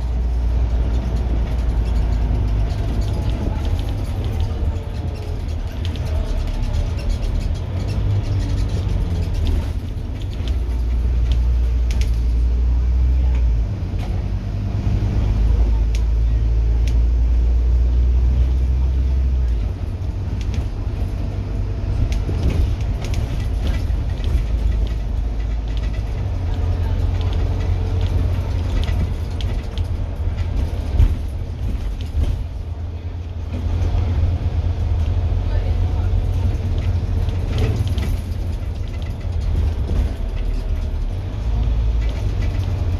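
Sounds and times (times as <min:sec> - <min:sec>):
bus diesel engine rumble: 0:00.0 - 0:42.9
clicks and rattles: 0:22.0 - 0:32.6, 0:36.2 - 0:42.9.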